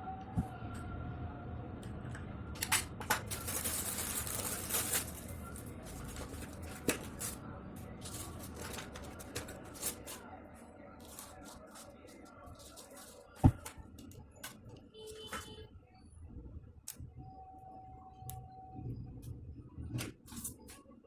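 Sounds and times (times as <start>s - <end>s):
packaging ripping and rustling: 3.2s - 10.2s, 11.0s - 13.7s.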